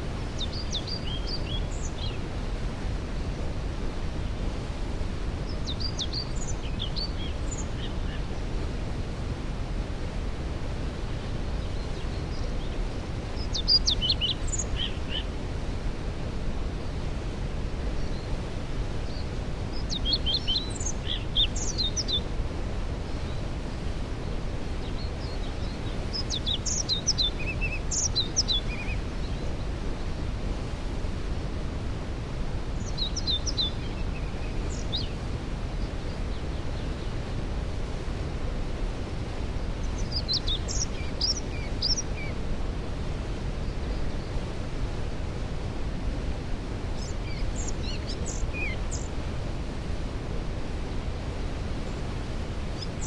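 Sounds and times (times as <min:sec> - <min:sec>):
waterfall rushing: 0:00.0 - 0:53.0
songbird singing: 0:00.3 - 0:02.3, 0:05.4 - 0:08.5, 0:11.2 - 0:15.6, 0:17.9 - 0:22.4, 0:24.0 - 0:30.2, 0:32.8 - 0:37.4, 0:38.9 - 0:42.4, 0:46.8 - 0:49.8.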